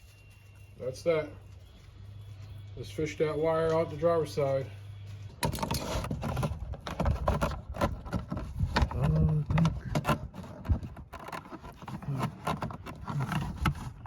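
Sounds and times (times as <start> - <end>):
clicking and scraping of plastic trim: 5.4 - 14.0.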